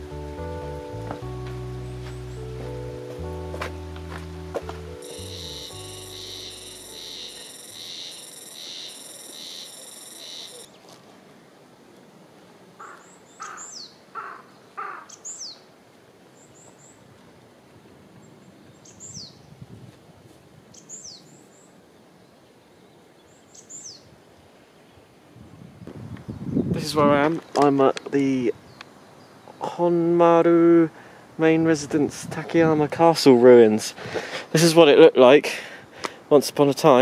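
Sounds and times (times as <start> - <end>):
backing music: 0.0 - 7.5
lower bird call: 5.0 - 10.8.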